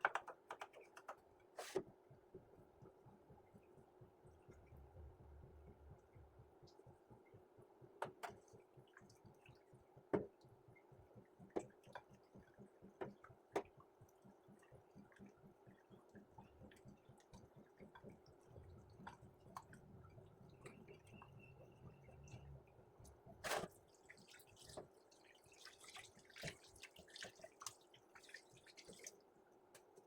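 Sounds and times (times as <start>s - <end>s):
low steady hum: 2.2s - 11.0s, 15.6s - 26.5s.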